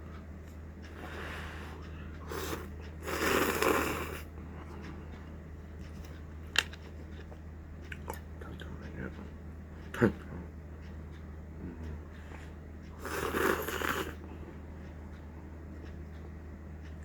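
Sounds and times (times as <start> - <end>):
steady low hum: 0.0 - 17.0
slurping noodles: 2.2 - 4.3, 13.0 - 14.2.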